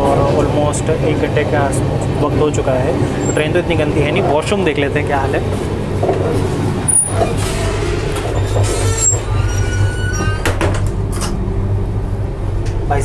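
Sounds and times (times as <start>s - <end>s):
moving train rumble: 0.0s - 13.0s.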